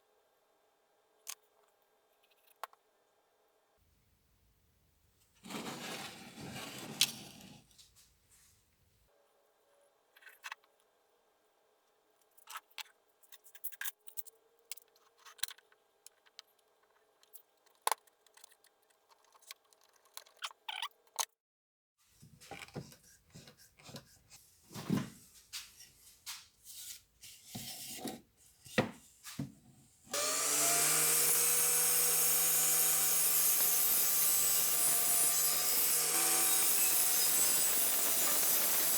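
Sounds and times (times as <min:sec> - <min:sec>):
electric power tool running: 0:30.1 - 0:38.9.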